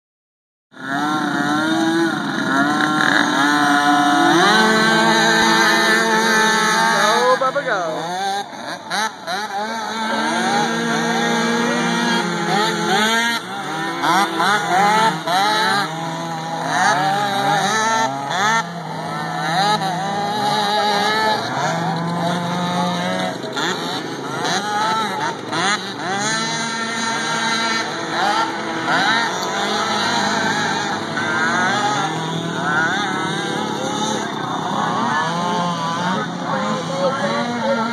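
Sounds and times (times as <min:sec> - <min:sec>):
small quad engines revving: 0:00.8 - 0:37.9.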